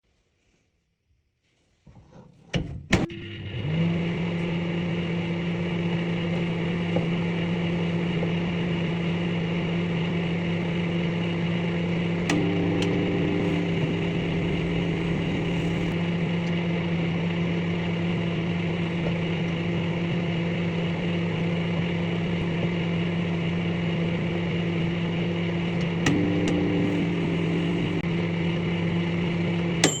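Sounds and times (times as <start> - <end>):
microwave oven humming: 3.0 - 30.0
microwave click: 12.2 - 15.9, 26.0 - 28.0.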